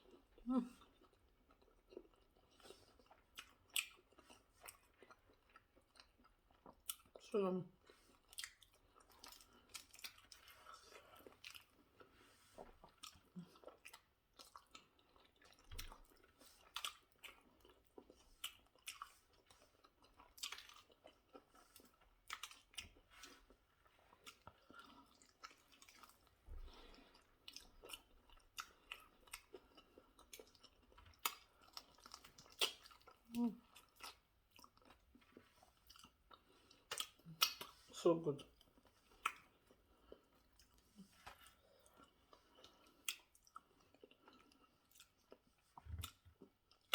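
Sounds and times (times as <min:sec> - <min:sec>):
person chewing food: 0:00.0 - 0:46.9.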